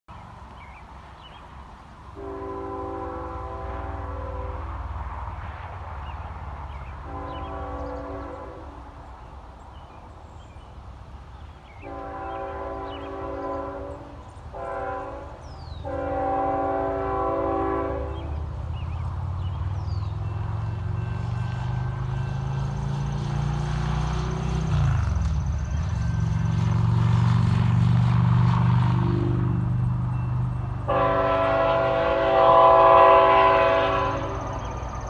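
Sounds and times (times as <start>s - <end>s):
diesel locomotive engines rumbling: 0.1s - 35.0s
locomotive air horn: 2.2s - 4.8s, 7.0s - 9.0s, 11.8s - 18.5s, 30.8s - 34.8s.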